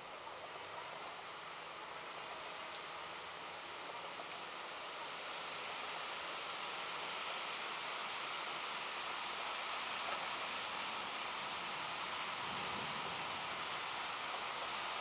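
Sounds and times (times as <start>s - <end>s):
steady rain falling: 0.0s - 15.0s
raindrop ticks: 2.2s - 2.9s, 4.2s - 4.5s.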